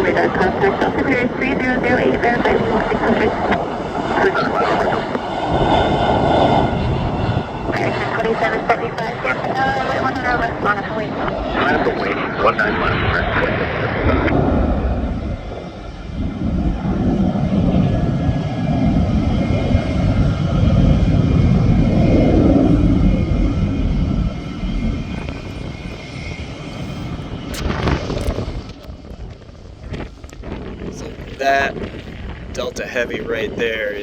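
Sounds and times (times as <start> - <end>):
jet airliner engines rumbling: 0.0 - 34.0.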